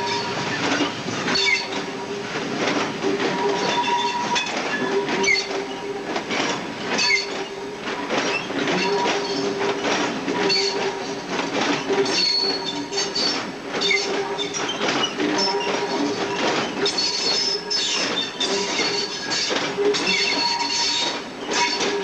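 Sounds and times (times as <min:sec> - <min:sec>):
train wheels knocking over rail joints: 0:00.0 - 0:22.0
high wheel squeals: 0:03.4 - 0:05.8, 0:16.7 - 0:22.0.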